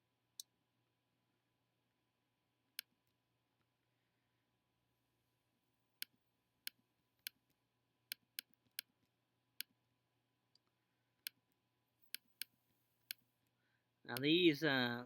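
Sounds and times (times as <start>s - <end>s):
computer mouse clicking: 8.1s - 9.0s, 12.0s - 13.2s.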